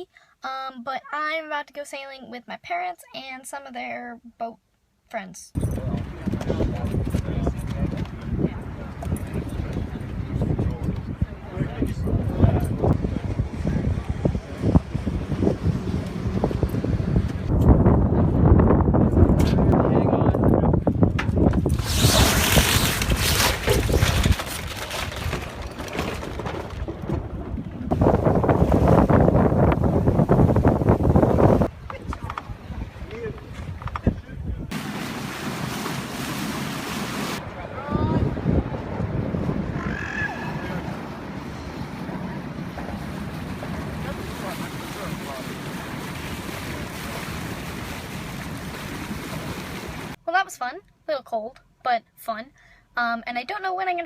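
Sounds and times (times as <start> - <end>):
wind buffeting microphone: 5.6 - 34.8, 37.4 - 50.2
water rushing along hull: 5.8 - 18.2, 21.7 - 33.8, 34.7 - 50.2.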